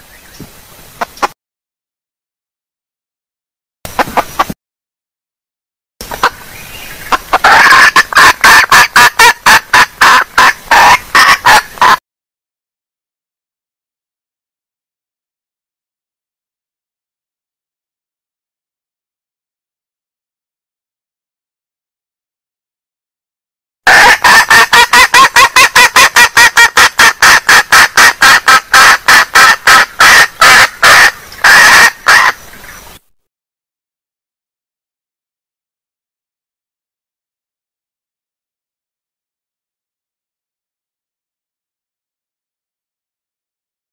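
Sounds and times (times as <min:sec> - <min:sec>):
hen clucking: 0:01.0 - 0:01.3, 0:03.9 - 0:04.6, 0:06.0 - 0:12.0, 0:23.9 - 0:32.8.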